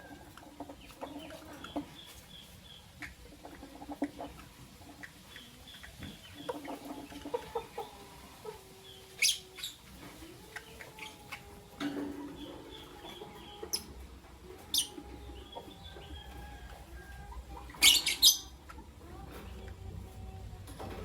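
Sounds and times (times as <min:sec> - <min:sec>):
faint bird twittering: 0:14.7 - 0:18.6
birds chirping shrilly: 0:17.7 - 0:18.6.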